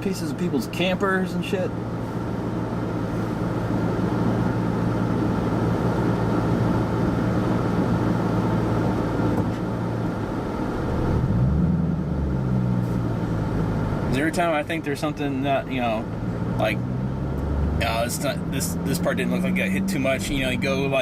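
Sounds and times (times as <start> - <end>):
car engine humming: 0.0 - 21.0
road noise inside car: 0.0 - 21.0.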